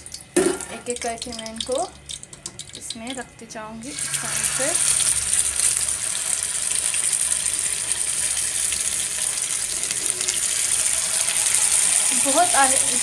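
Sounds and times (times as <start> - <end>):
chicken frying in hot fat: 0.0 - 13.0.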